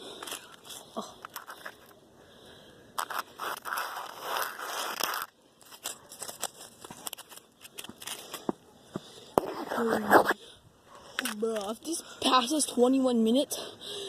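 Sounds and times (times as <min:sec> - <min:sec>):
close crunching and crackling: 0:00.0 - 0:02.0, 0:02.9 - 0:08.7
rustling crunch: 0:03.0 - 0:08.6.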